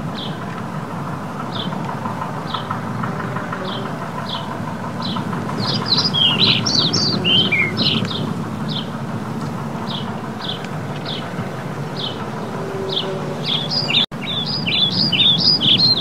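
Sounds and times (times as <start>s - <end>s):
steady background noise: 0.0s - 16.0s
small bird chirping: 2.5s - 8.9s, 9.8s - 16.0s.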